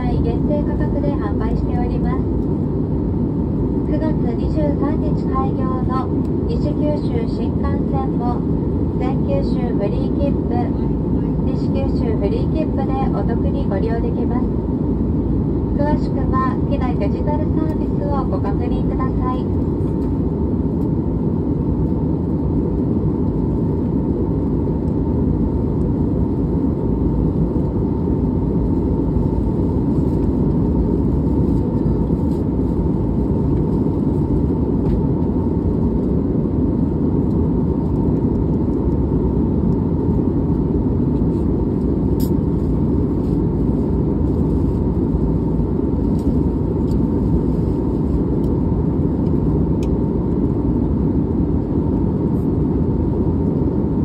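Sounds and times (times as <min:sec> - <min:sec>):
faint steady hum: 0:00.0 - 0:54.0
jet engine rumble: 0:00.0 - 0:54.0.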